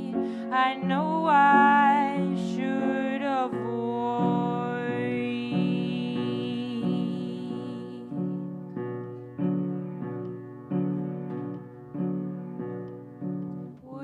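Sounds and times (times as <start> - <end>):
person singing with vibrato: 0.0 - 8.5
piano chords: 0.0 - 14.0.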